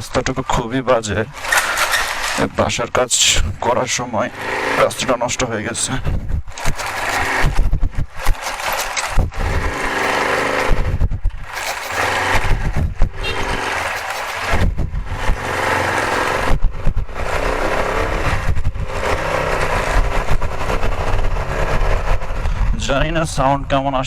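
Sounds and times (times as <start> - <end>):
motorcycle engine running: 1.2 - 2.6, 3.4 - 23.1
wind noise: 5.8 - 23.9.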